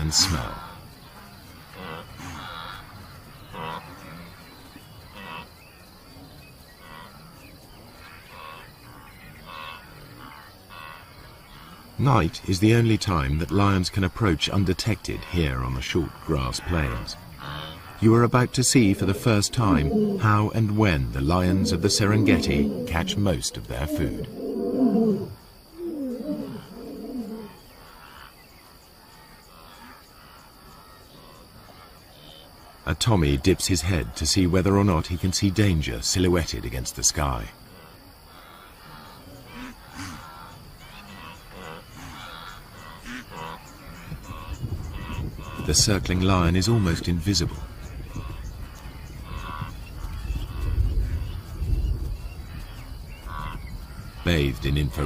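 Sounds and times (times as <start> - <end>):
lion calling: 0.0 - 5.5, 14.2 - 28.2
herd animals calling: 0.0 - 5.6, 6.2 - 28.3, 37.2 - 51.5
high insect trill: 0.0 - 55.0.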